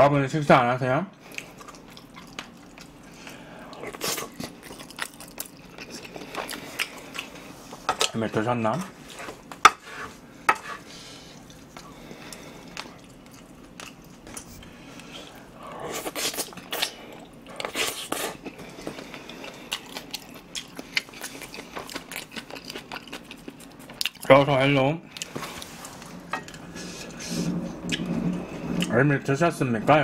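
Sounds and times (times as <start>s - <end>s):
close-up chewing: 1.2s - 7.9s, 11.2s - 24.4s.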